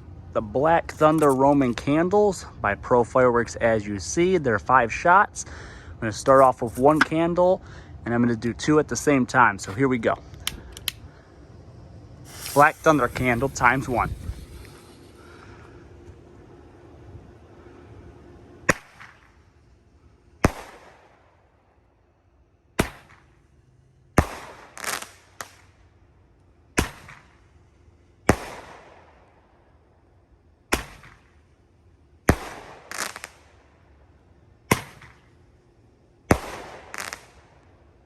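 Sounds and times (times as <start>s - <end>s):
firework crackle: 9.2s - 16.9s, 18.6s - 19.5s, 20.4s - 21.2s, 24.2s - 25.8s, 32.2s - 33.8s, 36.3s - 37.8s.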